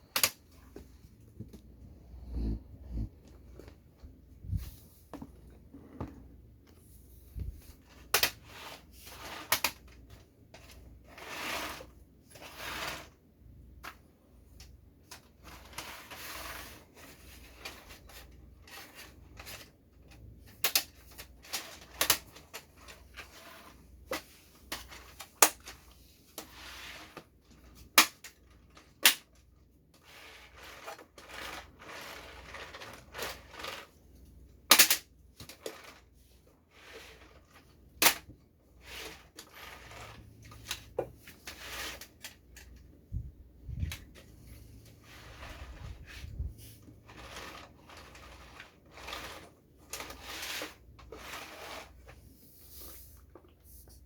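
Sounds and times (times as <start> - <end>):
plastic toy clicks and knocks: 0.1 - 0.4, 20.4 - 22.7, 34.7 - 35.8.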